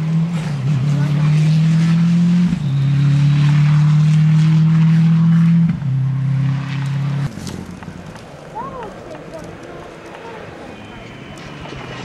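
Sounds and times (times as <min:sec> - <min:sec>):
rally car engine at high revs: 0:00.0 - 0:07.7.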